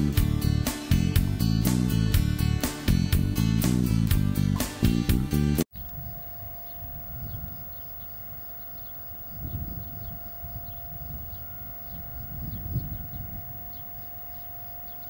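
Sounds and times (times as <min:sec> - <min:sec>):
high-pitched whine: 0:05.7 - 0:15.0
faint short chirps: 0:05.8 - 0:15.0.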